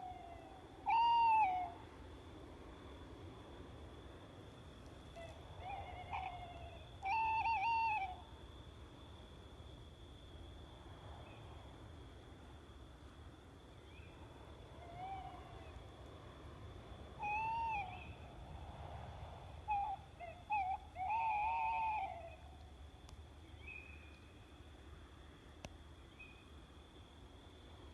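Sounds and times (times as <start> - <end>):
owl hooting: 0.0 - 1.8, 5.2 - 8.2, 14.8 - 15.7, 17.2 - 18.2, 19.7 - 22.5.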